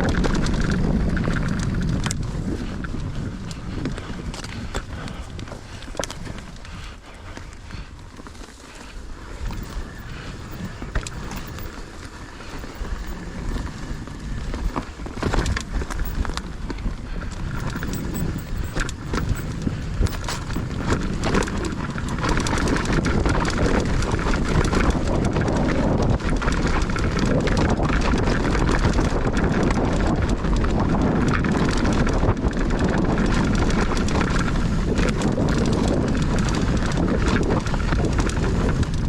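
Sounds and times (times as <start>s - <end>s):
bike knocking and rattling: 0.0s - 39.0s
bike tyres rumbling on dirt: 0.0s - 39.0s
wind on microphone: 0.0s - 39.0s.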